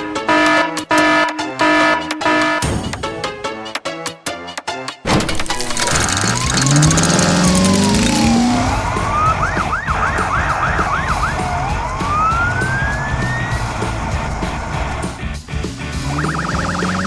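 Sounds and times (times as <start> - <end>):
police siren wailing and yelping: 16.1 - 17.0.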